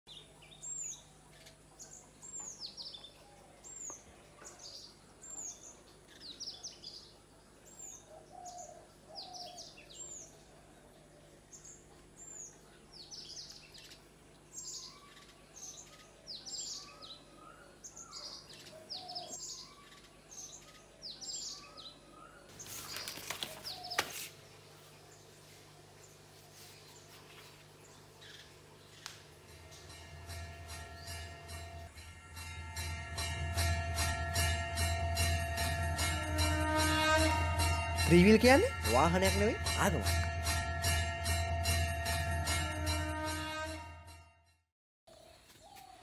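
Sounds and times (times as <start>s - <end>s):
birds chirping: 0.1s - 40.2s
rustling: 22.5s - 24.4s.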